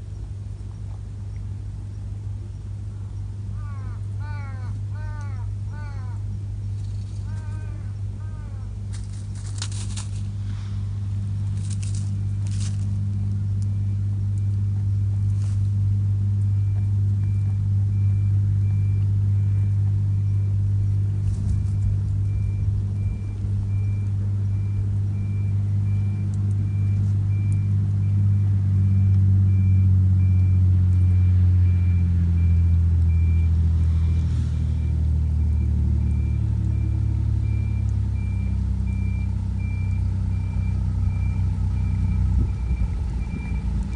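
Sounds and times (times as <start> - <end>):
truck engine running: 0.0 - 43.9
reversing alarm beeping: 11.7 - 15.6, 16.3 - 43.9.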